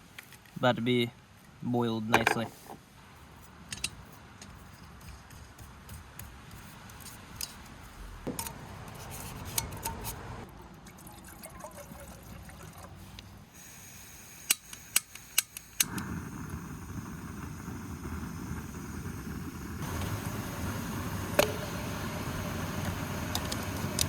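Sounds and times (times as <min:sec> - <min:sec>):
gas burner flame rushing: 0:13.5 - 0:24.0
piezo igniter clicks: 0:14.4 - 0:16.2, 0:22.7 - 0:24.0.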